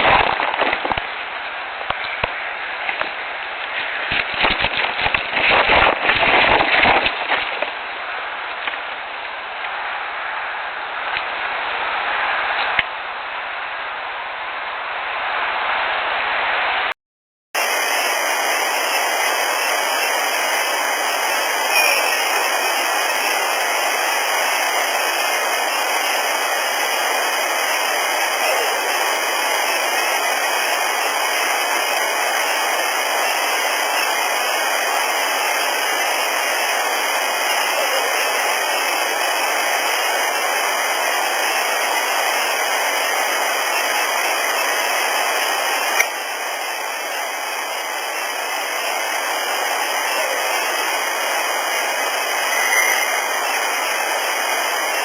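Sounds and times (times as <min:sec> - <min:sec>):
steady hiss: 0:17.6 - 0:55.0.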